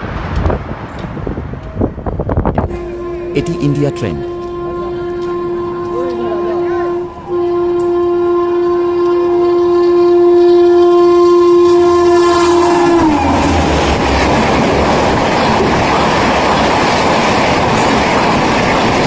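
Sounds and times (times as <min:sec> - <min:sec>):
locomotive horn blast: 0:02.6 - 0:14.5
train coaches rushing by: 0:12.2 - 0:19.0.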